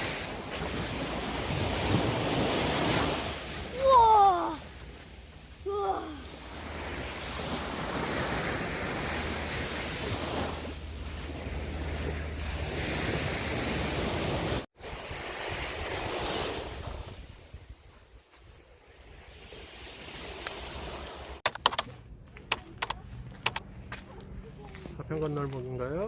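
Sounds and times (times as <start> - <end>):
sea waves breaking on sand: 0.0 - 17.6, 18.8 - 21.4.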